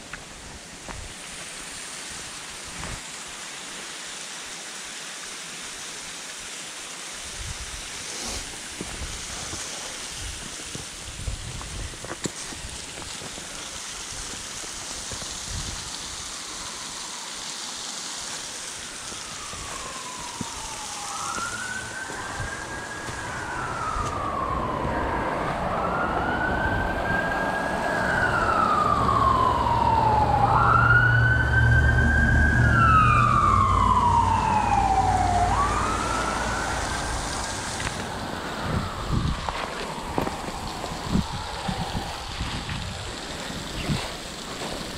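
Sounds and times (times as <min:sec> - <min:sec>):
emergency siren wailing: 0:18.7 - 0:43.0
vehicle rumble passing: 0:21.0 - 0:42.2.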